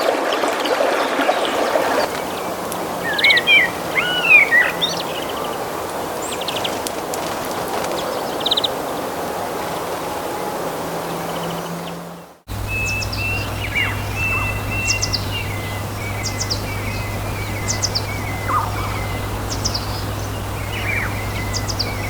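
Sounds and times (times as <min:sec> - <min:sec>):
river rushing: 0:00.0 - 0:22.0
lower warbling bird call: 0:01.5 - 0:06.8, 0:08.3 - 0:22.0
high bird chirps: 0:11.4 - 0:22.0.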